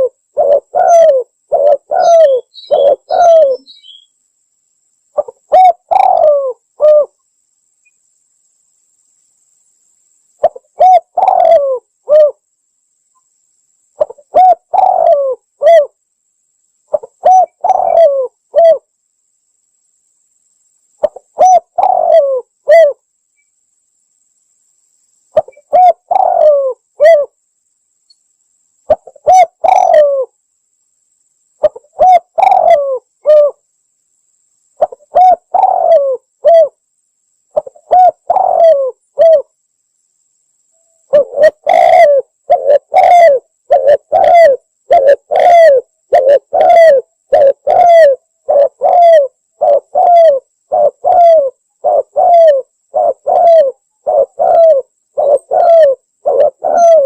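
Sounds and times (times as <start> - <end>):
dove cooing: 0.0 - 4.1, 5.2 - 7.2, 10.4 - 12.4, 14.0 - 16.0, 16.9 - 18.9, 21.0 - 23.0, 25.4 - 27.4, 28.9 - 30.3, 31.6 - 33.6, 34.8 - 36.8, 37.5 - 39.5, 41.1 - 57.0.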